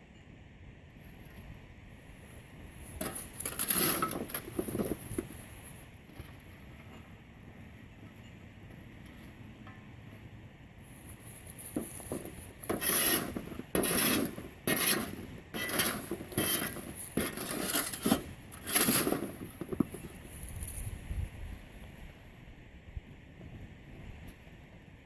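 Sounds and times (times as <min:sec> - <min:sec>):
charcoal scraping in metal pot: 0:03.0 - 0:05.5, 0:11.1 - 0:20.7.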